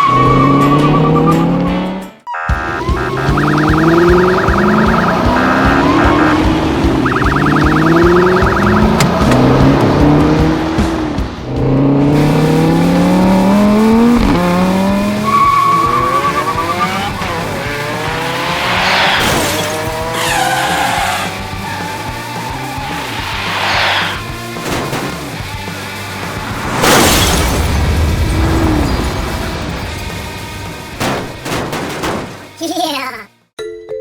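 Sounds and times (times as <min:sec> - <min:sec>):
background music: 0:00.0 - 0:18.7
cartoon engines revving: 0:00.0 - 0:25.0
rapid electronic beeping: 0:02.3 - 0:09.3.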